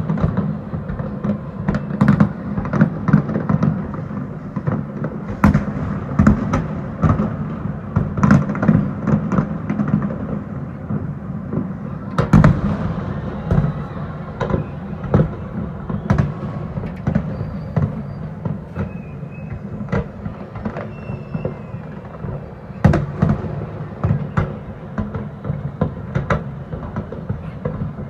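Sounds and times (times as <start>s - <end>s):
distant firework booms: 0.0s - 28.0s
firework shells bursting: 12.2s - 22.2s.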